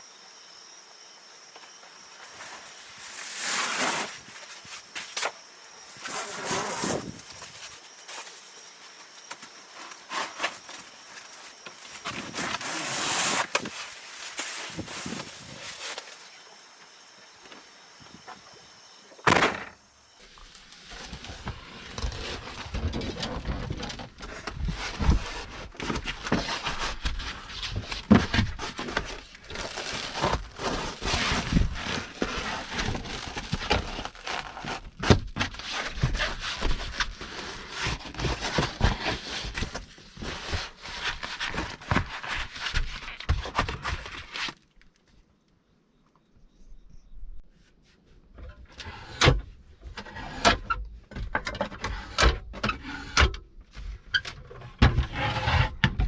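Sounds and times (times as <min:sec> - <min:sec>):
crackling and rustling handling noise: 0:02.2 - 0:17.7, 0:19.2 - 0:45.2.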